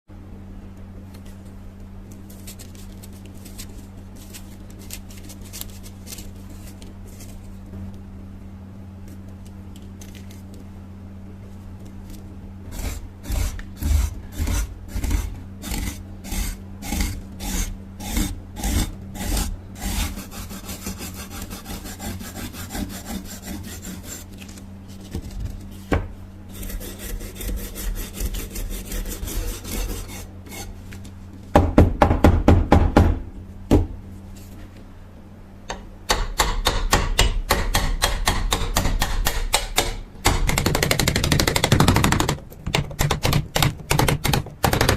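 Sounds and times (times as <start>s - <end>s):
scraping strokes on knife: 12.7s - 25.0s, 26.5s - 31.0s.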